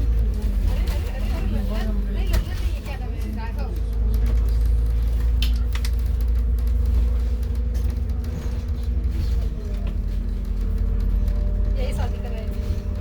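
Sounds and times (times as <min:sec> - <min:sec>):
bus body rattling: 0:00.0 - 0:13.0
bus engine rumble: 0:00.0 - 0:13.0.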